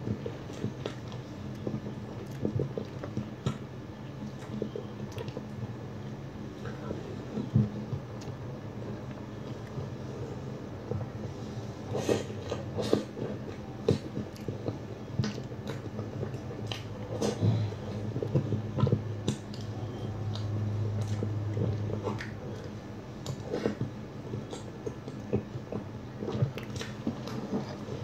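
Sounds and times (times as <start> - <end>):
wet chewing and mouth smacks: 0.1 - 5.6, 11.9 - 28.0.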